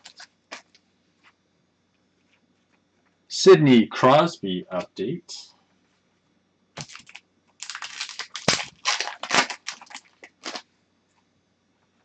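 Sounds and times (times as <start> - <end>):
cards and packaging crinkling: 0.0 - 0.8, 6.8 - 10.7.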